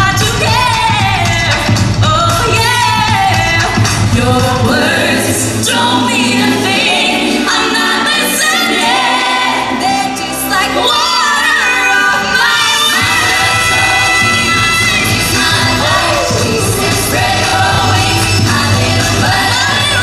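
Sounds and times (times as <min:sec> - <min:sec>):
voices singing together: 0:00.0 - 0:20.0
live band music: 0:08.9 - 0:20.0.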